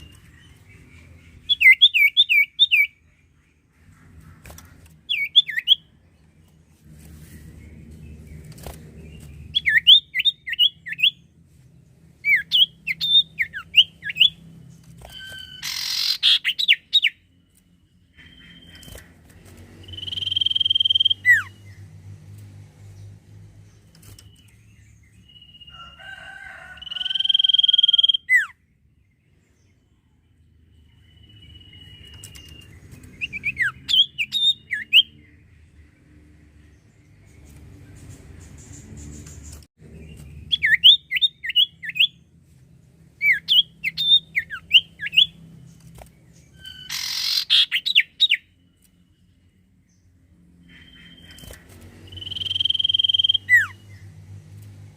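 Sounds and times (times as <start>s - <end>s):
bird chirping and whistling: 1.4s - 3.0s, 5.1s - 5.9s, 9.5s - 11.2s, 12.2s - 14.4s, 15.0s - 17.2s, 19.8s - 21.6s, 26.9s - 28.5s, 31.0s - 35.2s, 40.4s - 42.2s, 43.2s - 45.4s, 46.5s - 48.5s, 50.8s - 53.8s.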